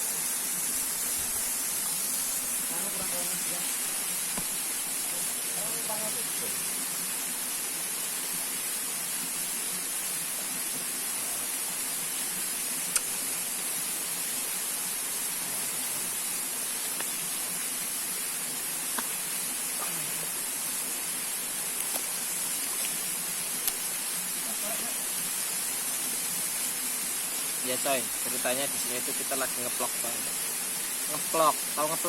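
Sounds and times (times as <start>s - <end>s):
waterfall rushing: 0.0s - 32.0s
faint ticks: 12.9s - 13.2s
sharp click: 12.9s - 13.2s.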